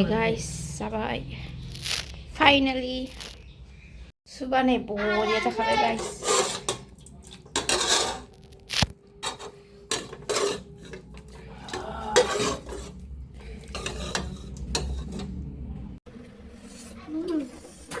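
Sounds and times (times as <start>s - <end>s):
dishes and cutlery clinking: 5.7s - 8.3s, 9.2s - 15.4s.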